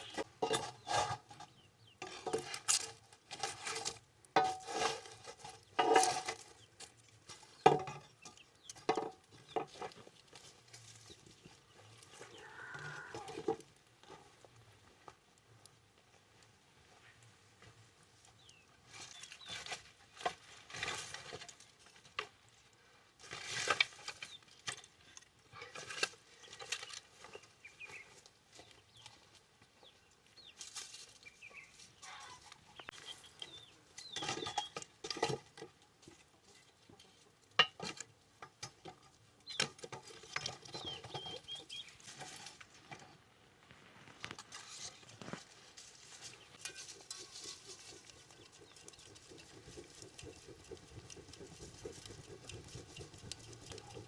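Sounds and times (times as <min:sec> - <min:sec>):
rustling: 0:30.5 - 0:33.4, 0:39.9 - 0:54.0
chickens clucking: 0:31.5 - 0:34.8, 0:46.5 - 0:54.0.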